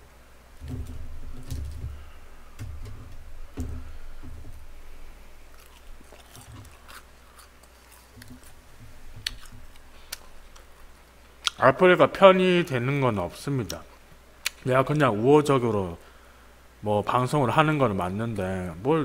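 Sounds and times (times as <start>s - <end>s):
man chewing: 3.8s - 11.6s.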